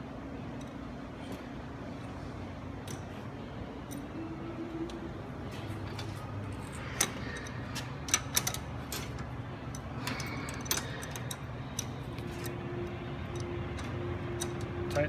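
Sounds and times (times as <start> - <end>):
low hum: 0.0 - 15.0
metallic clicks and taps: 13.3 - 15.0.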